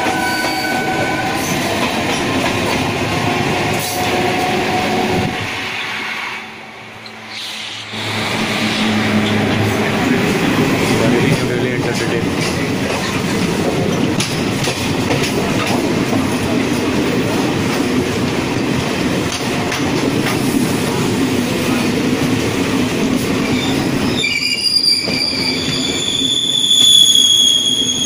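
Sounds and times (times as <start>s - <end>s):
high-pitched wheel squeal: 0.0s - 1.3s, 23.5s - 28.0s
train rolling noise: 0.0s - 28.0s.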